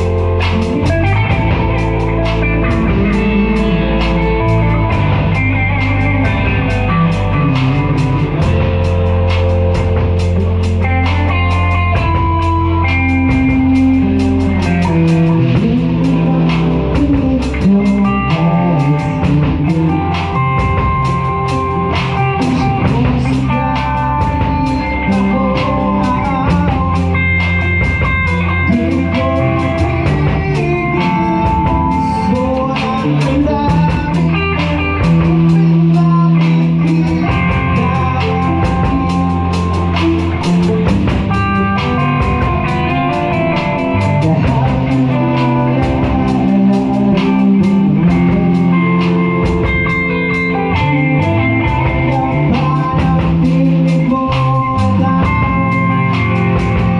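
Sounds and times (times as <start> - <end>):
bass: 0.0 - 56.9
drum kit steady beat: 0.0 - 56.9
guitar with held notes: 0.0 - 56.9.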